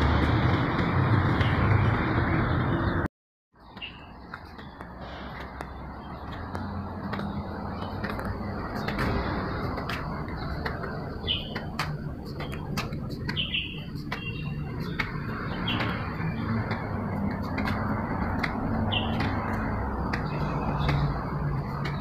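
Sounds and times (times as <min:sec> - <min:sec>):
bird chirping: 0:03.6 - 0:05.0, 0:05.7 - 0:17.5, 0:18.8 - 0:22.0.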